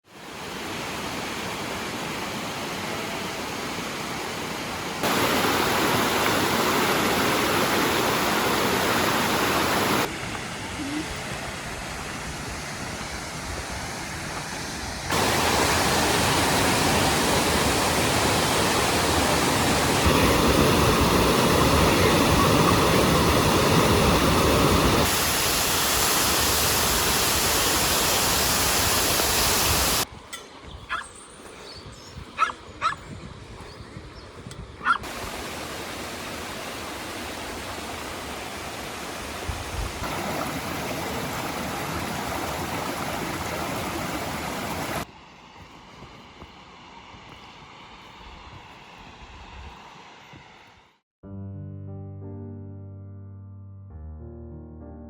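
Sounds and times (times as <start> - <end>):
waterfall rushing: 0.1 - 30.1, 35.0 - 45.1.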